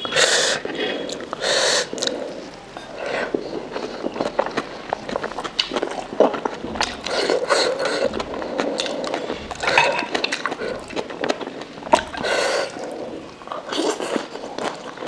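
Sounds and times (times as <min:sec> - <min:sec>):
wet chewing and mouth smacking: 0:00.0 - 0:15.0.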